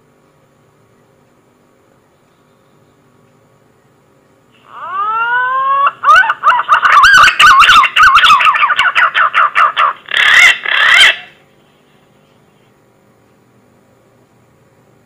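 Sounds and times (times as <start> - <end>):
pigeon whistling call: 4.7 - 11.4.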